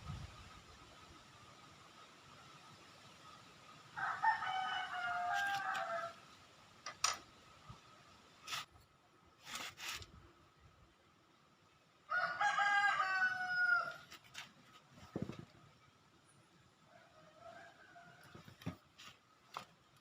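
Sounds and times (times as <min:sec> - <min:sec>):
rooster crowing: 0:04.0 - 0:06.2, 0:12.1 - 0:14.1, 0:16.9 - 0:18.5.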